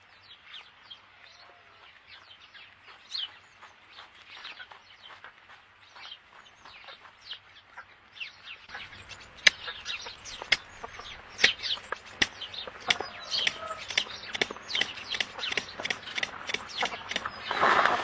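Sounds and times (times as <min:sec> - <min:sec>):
high chirping calls: 0:08.3 - 0:17.9
chickens clucking: 0:08.7 - 0:18.0
sharp clicks: 0:09.2 - 0:17.5.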